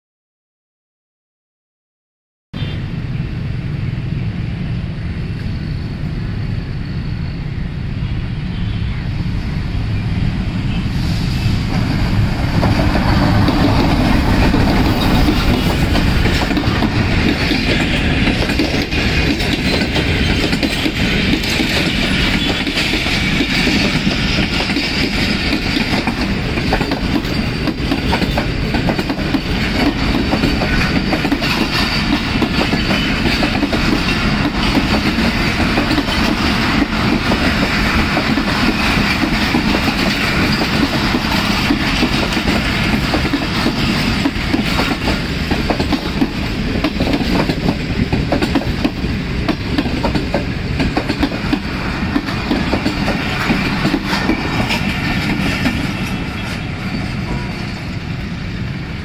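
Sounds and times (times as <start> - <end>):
train rumbling past: 2.6 - 59.0.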